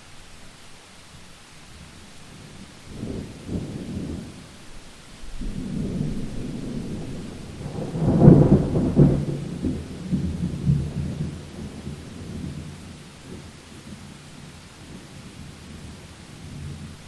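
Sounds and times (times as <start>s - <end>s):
steady rain: 0.0s - 17.0s
thunder rumbling: 5.1s - 13.9s.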